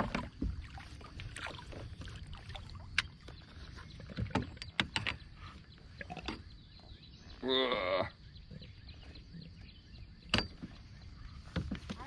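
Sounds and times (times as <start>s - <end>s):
kayak handling clicks and knocks: 2.9s - 5.4s, 6.0s - 6.5s, 11.5s - 12.0s.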